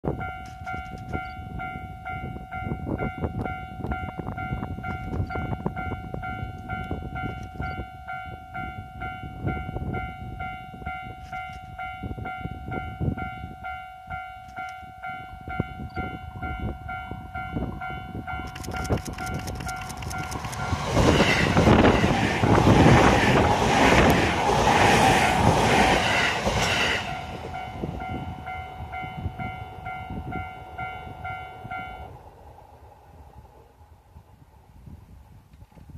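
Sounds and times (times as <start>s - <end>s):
steady ringing tone: 0.0s - 22.3s, 27.1s - 32.2s
train wheels clattering on rails: 18.4s - 27.7s.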